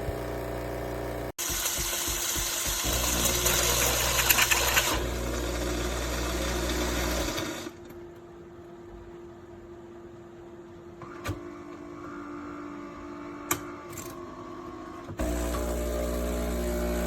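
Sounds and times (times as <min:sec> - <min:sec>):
espresso machine whirring: 0:00.0 - 0:07.8, 0:15.2 - 0:17.0.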